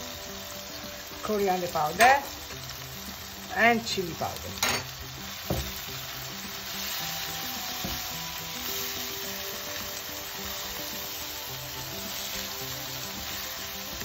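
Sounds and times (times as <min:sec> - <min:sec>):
vegetables sizzling in hot oil: 0:00.0 - 0:14.0
spatula stirring in a pan: 0:04.8 - 0:14.0
knock: 0:05.5 - 0:05.7.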